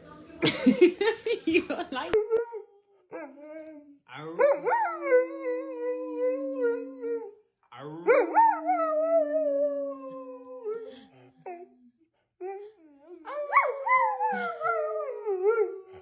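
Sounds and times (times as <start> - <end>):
dog howling: 13.3 - 15.9.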